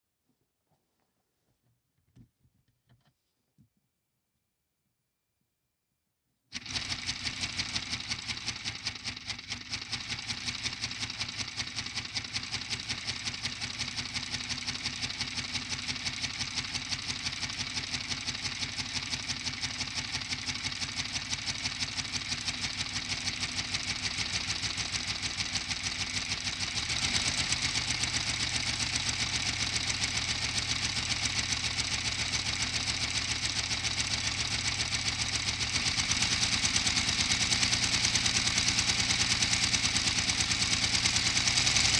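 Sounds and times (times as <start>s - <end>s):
toy engine rapid clatter: 6.5s - 41.9s.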